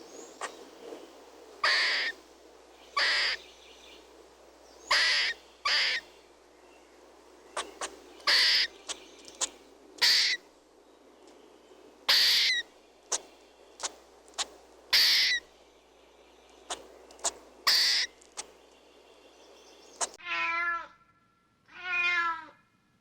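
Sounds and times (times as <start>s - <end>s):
bird harsh hissing calls: 1.6s - 2.2s, 2.8s - 4.0s, 4.7s - 6.2s, 7.5s - 10.5s, 12.0s - 15.5s, 16.6s - 18.6s, 19.7s - 20.2s.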